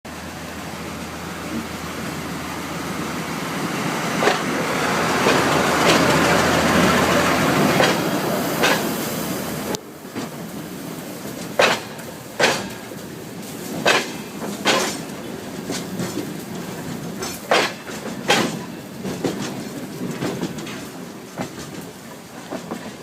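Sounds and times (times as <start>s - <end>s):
train passing on rails: 0.1s - 23.0s
clicks from rail joints: 4.2s - 4.5s, 5.2s - 6.8s, 7.7s - 9.0s, 11.3s - 23.0s.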